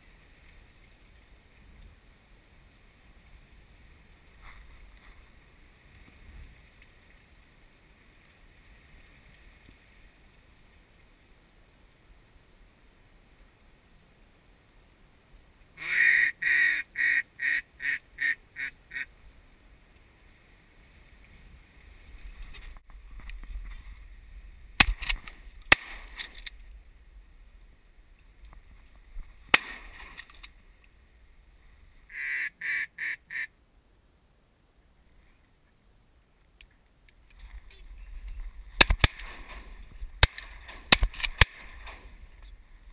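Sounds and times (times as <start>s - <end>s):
duck call quacks: 15.8s - 19.1s, 32.1s - 33.5s
shotgun shots: 24.8s - 26.4s, 29.5s - 30.2s, 38.8s - 42.1s.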